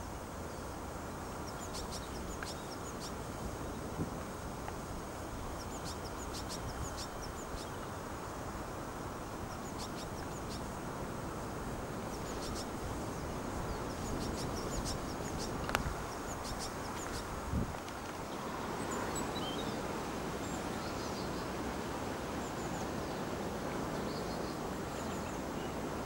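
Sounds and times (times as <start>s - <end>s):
wind rumble: 0.0s - 18.1s
songbirds chirping: 0.0s - 26.0s.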